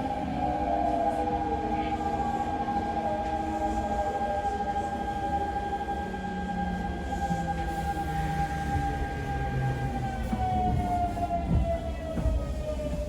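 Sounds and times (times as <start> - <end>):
train wheels rumbling on rails: 0.1 - 13.0.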